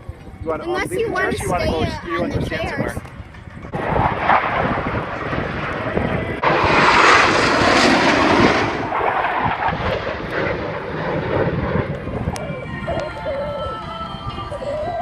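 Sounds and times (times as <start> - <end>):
aircraft engine passing: 3.2 - 13.9.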